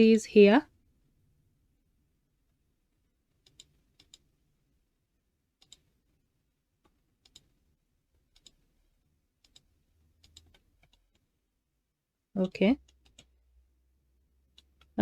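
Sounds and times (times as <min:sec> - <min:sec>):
computer mouse clicks: 0:03.4 - 0:04.3, 0:05.6 - 0:05.9, 0:06.8 - 0:07.5, 0:08.3 - 0:08.6, 0:09.4 - 0:11.3, 0:12.8 - 0:13.4.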